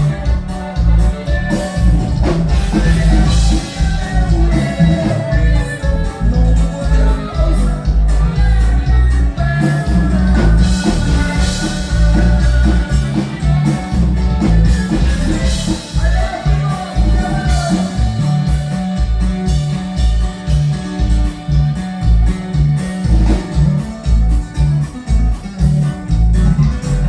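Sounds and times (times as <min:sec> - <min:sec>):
person singing: 0:00.0 - 0:19.9
band music with bass line: 0:00.0 - 0:27.0.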